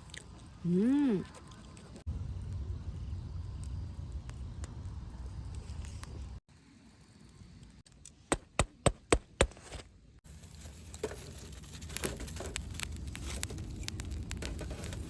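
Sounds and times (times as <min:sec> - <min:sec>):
campfire crackling: 0:00.0 - 0:09.4, 0:10.2 - 0:15.0
burning logs popping: 0:01.4 - 0:15.0.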